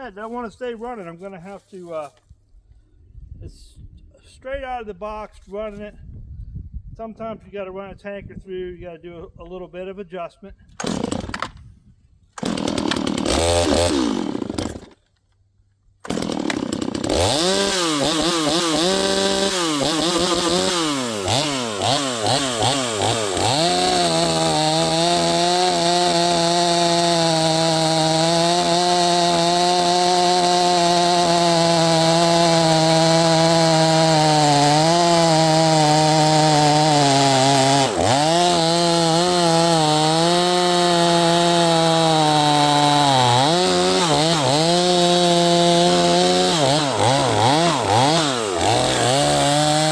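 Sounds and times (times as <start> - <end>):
chainsaw revving: 10.8 - 11.6, 12.4 - 15.0, 16.0 - 49.9.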